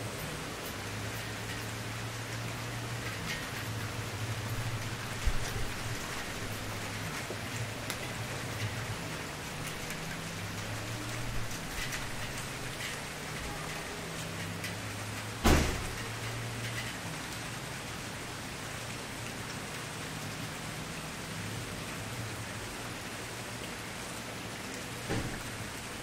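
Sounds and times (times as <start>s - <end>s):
campfire hissing and crackling: 0.0s - 26.0s
fire popping: 3.0s - 13.3s.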